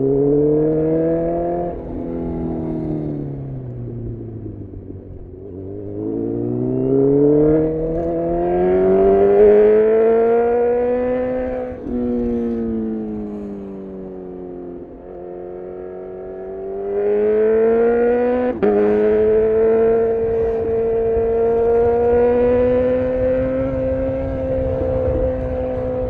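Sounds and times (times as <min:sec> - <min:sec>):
motorcycle engine accelerating: 0:00.0 - 0:26.0
wind rumble: 0:00.0 - 0:26.0.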